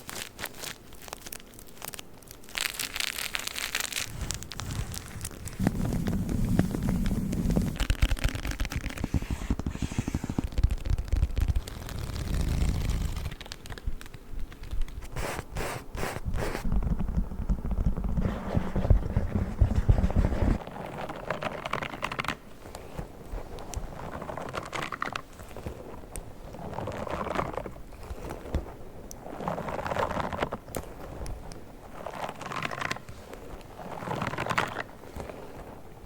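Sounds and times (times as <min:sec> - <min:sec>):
soft scratching and crackling: 0:00.0 - 0:36.0
objects scratched and scraped: 0:04.0 - 0:10.7, 0:18.0 - 0:20.6.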